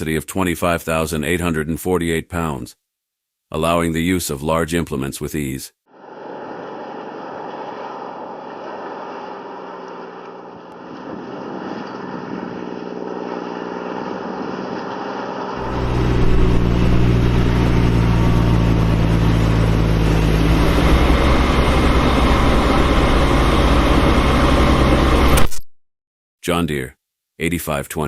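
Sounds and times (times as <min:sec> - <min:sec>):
tractor diesel engine running: 0:06.7 - 0:25.2.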